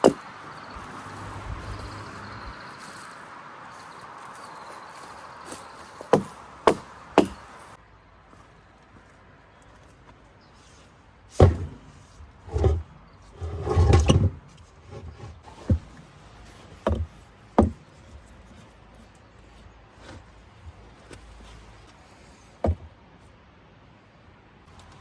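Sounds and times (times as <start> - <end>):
wood knocking and thudding: 0.0 - 0.3, 5.0 - 7.6, 11.4 - 16.1, 16.8 - 17.9, 22.6 - 22.9
rustling clatter of wood: 0.0 - 3.1, 3.7 - 7.8, 11.3 - 22.9.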